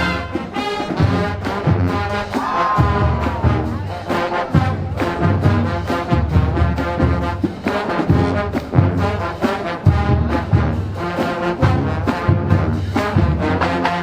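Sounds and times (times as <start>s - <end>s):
brass melody: 0.0s - 2.4s, 3.0s - 14.0s
marching band playing: 0.0s - 14.0s
drums beating: 1.6s - 9.1s.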